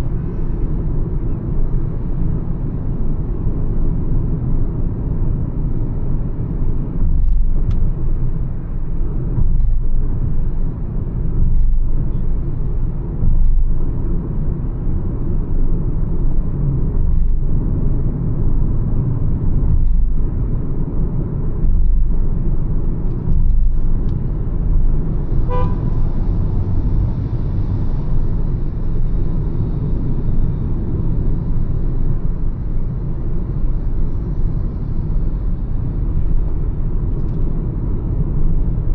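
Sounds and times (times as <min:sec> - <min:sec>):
car cruising road noise: 0:00.0 - 0:38.9
car horn beep: 0:25.5 - 0:26.0.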